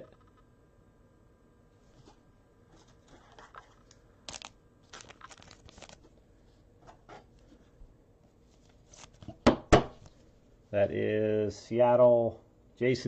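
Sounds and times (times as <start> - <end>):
plastic packaging crinkling: 2.8 - 6.1
trading cards rustling: 2.8 - 6.1, 8.5 - 9.3.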